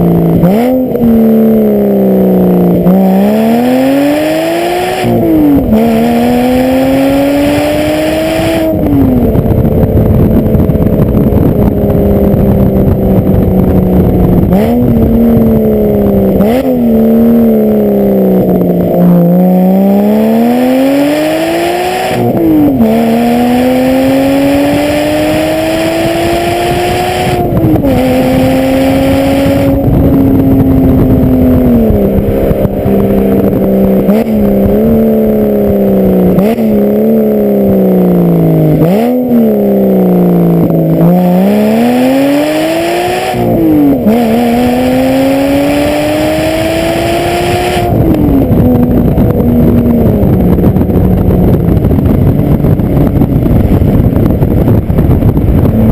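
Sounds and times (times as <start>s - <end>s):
car exhaust revving through gears: 0.0s - 55.9s.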